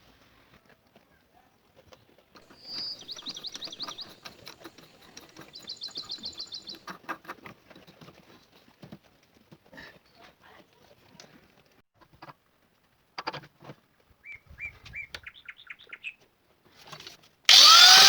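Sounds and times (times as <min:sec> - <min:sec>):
bird singing trills: 0:02.5 - 0:04.3, 0:05.4 - 0:06.8.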